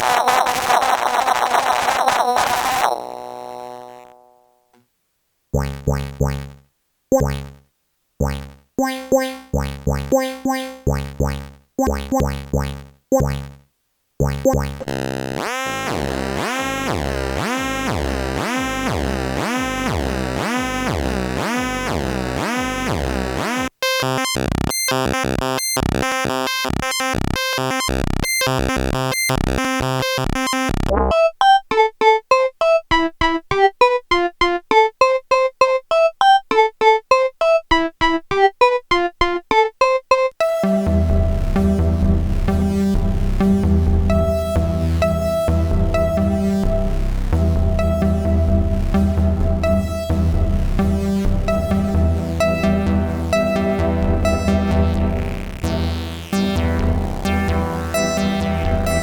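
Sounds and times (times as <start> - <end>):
pulsing synthesizer notes: 0.0 - 4.6, 5.6 - 7.6, 8.2 - 13.6, 14.2 - 31.2, 40.4 - 59.0
synthesizer filter sweep sequence: 0.0 - 4.6, 5.6 - 7.6, 8.2 - 13.6, 14.2 - 31.2, 40.4 - 59.0
plucky synthesizer notes: 0.0 - 4.8, 5.6 - 34.0, 35.0 - 59.0
bright staccato synthesizer notes: 5.6 - 7.6, 8.2 - 13.6, 14.2 - 15.0, 40.4 - 59.0.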